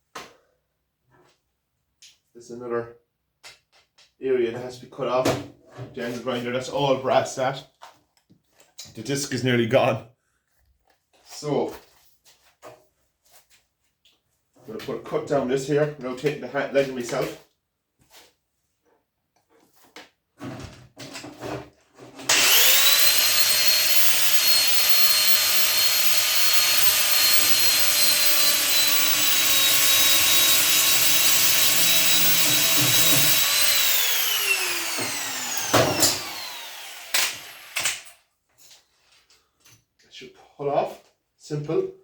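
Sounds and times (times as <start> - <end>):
angle grinder cutting metal: 22.3 - 38.2.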